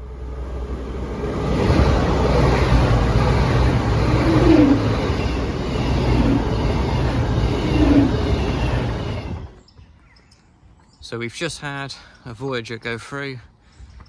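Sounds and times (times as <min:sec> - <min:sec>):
low diesel engine hum: 0:00.0 - 0:09.6
train wheels rushing on rails: 0:00.0 - 0:09.6.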